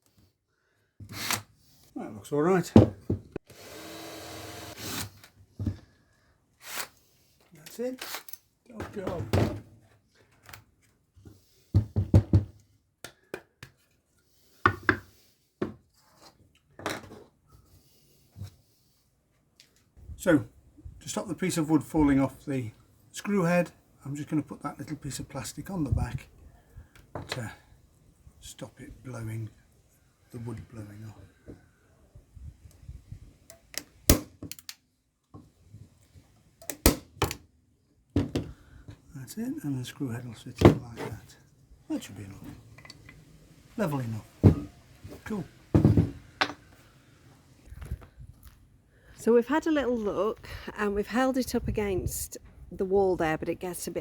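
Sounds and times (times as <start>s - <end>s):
wood and tools knocking: 44.4s - 46.8s.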